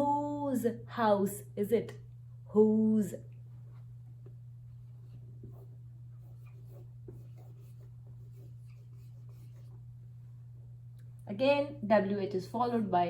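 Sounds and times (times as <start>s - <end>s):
low electrical hum: 0.0s - 13.0s
pen scratching while writing: 5.4s - 9.8s.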